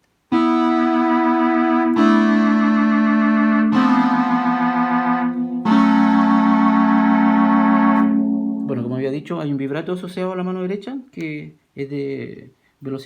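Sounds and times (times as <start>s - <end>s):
home organ playing held chords: 0.3s - 9.2s.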